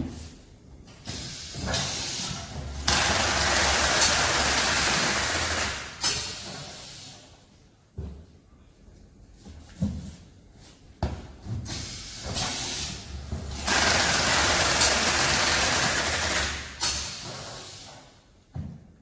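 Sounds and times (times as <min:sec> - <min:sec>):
loud hiss of air: 0:01.0 - 0:07.4, 0:11.7 - 0:18.2.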